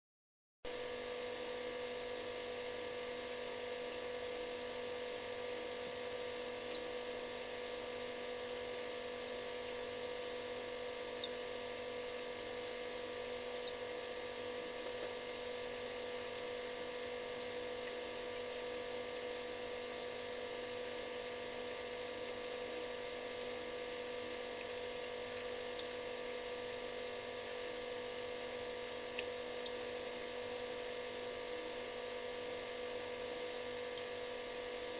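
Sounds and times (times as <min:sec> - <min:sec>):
refrigerator humming: 0:00.7 - 0:34.9
faint ticks: 0:06.6 - 0:07.5, 0:11.1 - 0:11.4, 0:20.8 - 0:23.9, 0:24.5 - 0:27.9, 0:28.6 - 0:31.8, 0:32.6 - 0:34.2.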